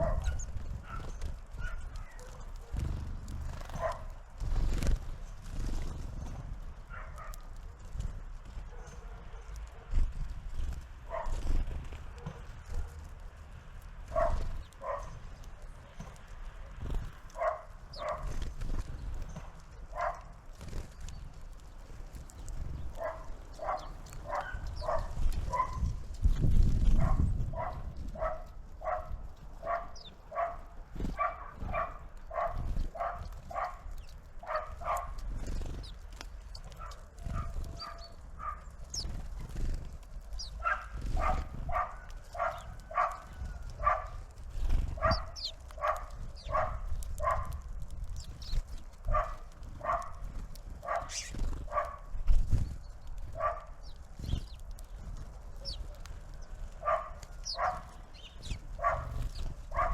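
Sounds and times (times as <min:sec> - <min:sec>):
small birds chirping: 0:00.0 - 0:59.9
animal calling: 0:27.0 - 0:39.7, 0:40.3 - 0:47.6, 0:50.8 - 0:52.0, 0:55.6 - 0:59.9.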